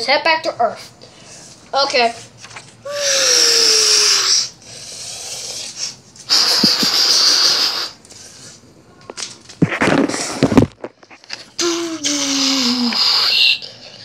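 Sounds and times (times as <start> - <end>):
person hissing with mouth: 2.9 - 8.0, 11.6 - 13.7.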